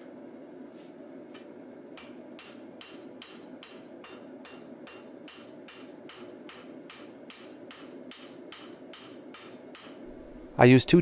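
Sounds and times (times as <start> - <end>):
hammer ringing on steel: 2.4 - 10.0.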